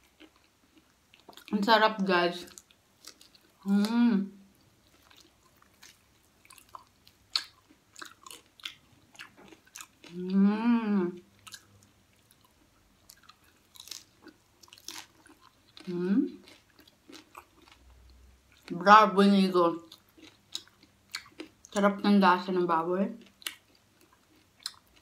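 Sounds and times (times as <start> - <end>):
crunchy chewing: 0.0 - 1.5, 2.4 - 3.6, 4.6 - 10.2, 11.4 - 18.7, 19.8 - 21.8, 23.2 - 25.0
person humming mm: 10.1 - 11.2.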